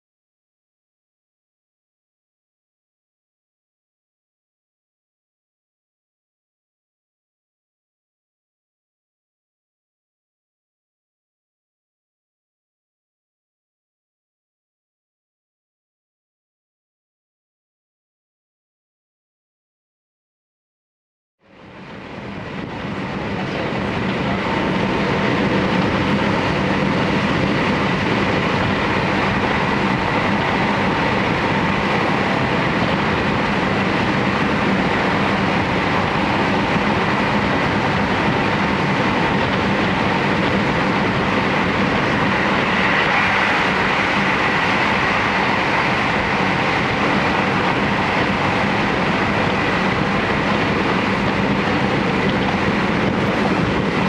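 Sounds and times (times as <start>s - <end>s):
train wheels rumbling on rail: 21.5s - 54.0s.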